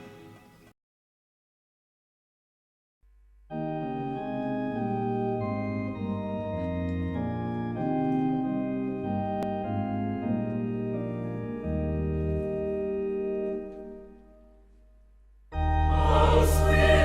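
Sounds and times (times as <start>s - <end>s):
organ playing a hymn: 3.5s - 14.7s, 15.5s - 17.0s.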